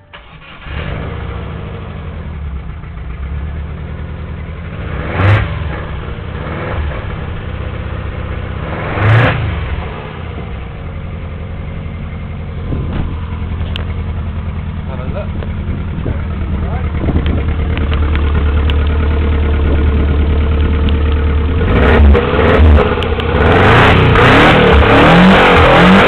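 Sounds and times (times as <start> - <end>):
engine starting and revving: 0.0 - 2.4, 4.7 - 7.2, 8.6 - 10.4, 21.5 - 26.0
engine idling: 0.0 - 26.0.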